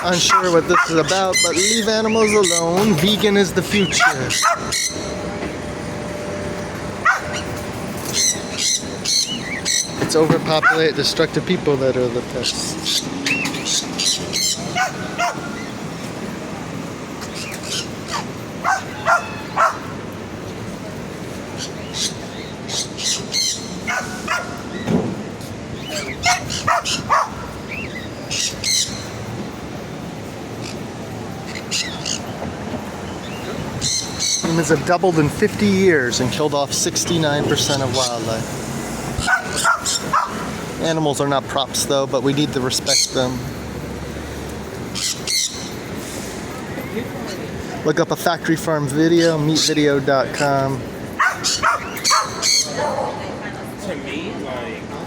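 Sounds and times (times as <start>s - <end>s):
dog barking and yipping: 0.0s - 1.2s, 3.8s - 5.0s, 7.0s - 7.6s, 10.6s - 10.8s, 14.5s - 15.8s, 18.0s - 20.0s, 23.8s - 24.8s, 26.0s - 27.8s, 39.2s - 40.6s, 51.2s - 53.3s
parrots squawking: 0.0s - 5.4s, 6.5s - 11.3s, 12.2s - 16.1s, 16.9s - 20.1s, 21.4s - 24.9s, 25.7s - 29.6s, 30.5s - 32.4s, 33.0s - 41.0s, 42.3s - 43.8s, 44.9s - 47.7s, 48.9s - 53.3s
street background hum: 0.0s - 55.0s.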